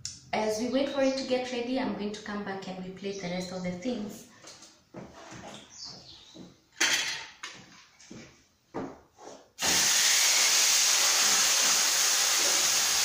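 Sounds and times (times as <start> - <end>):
chicken sizzling in a hot pan: 9.6 - 13.0.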